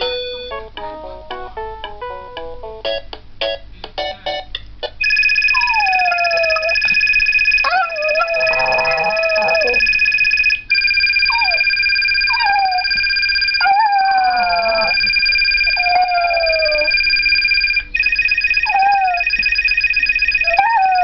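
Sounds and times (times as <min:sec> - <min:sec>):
phone ringtone: 0:00.0 - 0:00.6, 0:05.0 - 0:21.0
dog howling: 0:05.6 - 0:06.9, 0:07.6 - 0:09.9, 0:11.3 - 0:11.7, 0:12.3 - 0:13.0, 0:13.6 - 0:17.0, 0:18.7 - 0:19.3, 0:20.5 - 0:21.0.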